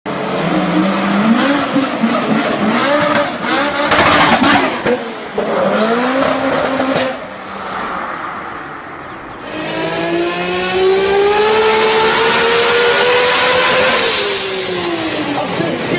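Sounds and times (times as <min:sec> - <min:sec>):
car engine revving: 0:00.3 - 0:07.4, 0:09.4 - 0:15.9
loud rushing burst: 0:09.4 - 0:15.9.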